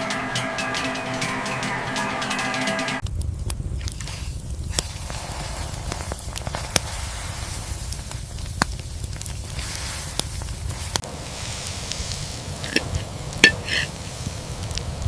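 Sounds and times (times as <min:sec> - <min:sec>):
steady hiss: 0:02.9 - 0:15.0
sharp crackling pops: 0:03.0 - 0:15.0.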